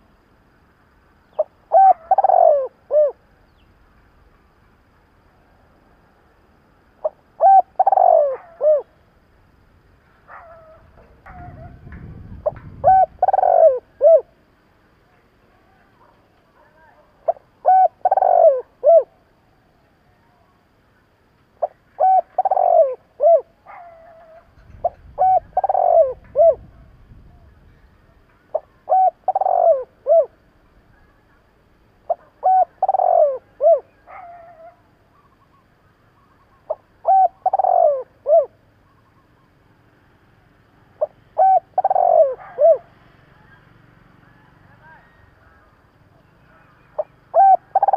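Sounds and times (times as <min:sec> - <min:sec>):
dove cooing: 0:01.3 - 0:03.2, 0:07.0 - 0:09.0, 0:10.3 - 0:14.4, 0:17.2 - 0:19.2, 0:21.6 - 0:27.5, 0:28.5 - 0:30.4, 0:32.0 - 0:35.6, 0:36.4 - 0:39.2, 0:40.9 - 0:43.0, 0:46.4 - 0:47.9.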